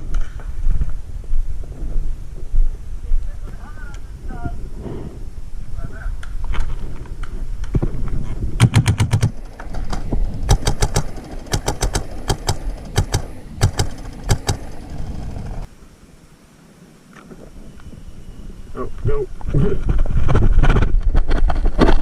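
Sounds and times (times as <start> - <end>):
paintball markers firing in bursts: 8.6 - 14.8.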